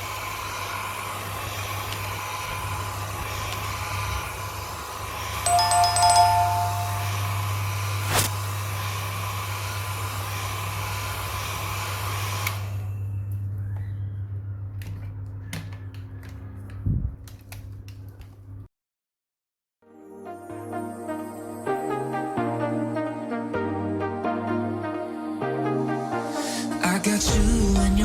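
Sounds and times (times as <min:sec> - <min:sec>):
hot-air blower rushing: 0:00.0 - 0:12.9.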